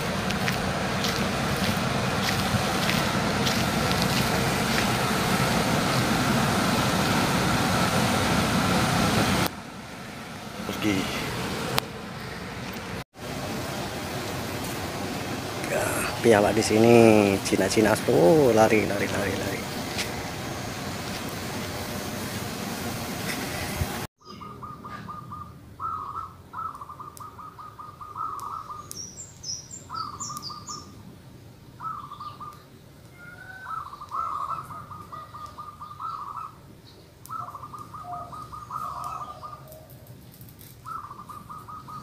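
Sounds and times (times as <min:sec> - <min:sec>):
rushing noise: 0:00.0 - 0:24.1
bird trilling: 0:24.2 - 0:30.9, 0:31.8 - 0:32.6, 0:33.2 - 0:36.6, 0:37.3 - 0:39.9, 0:40.8 - 0:42.0
faint high bird chirps: 0:24.2 - 0:30.9.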